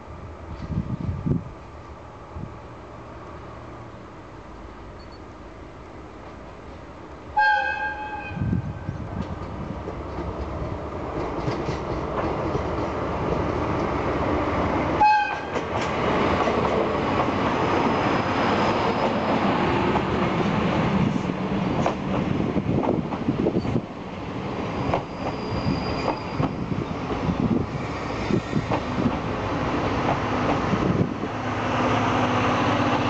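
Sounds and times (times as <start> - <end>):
diesel locomotive engine: 0.0 - 33.0
train coaches rolling on rails: 6.1 - 33.0
locomotive horn blast: 7.4 - 8.6, 15.0 - 15.6.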